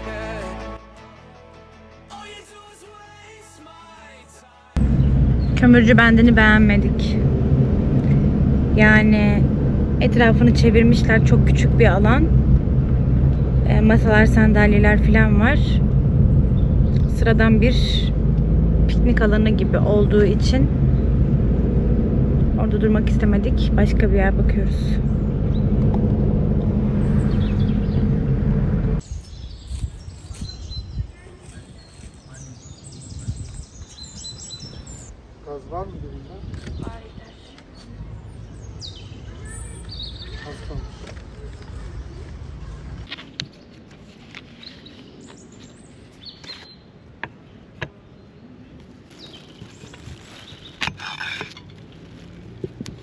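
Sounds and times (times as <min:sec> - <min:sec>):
low rumble: 0:04.8 - 0:43.1
birds chirping: 0:04.8 - 0:43.8
car engine and road noise: 0:04.8 - 0:53.0.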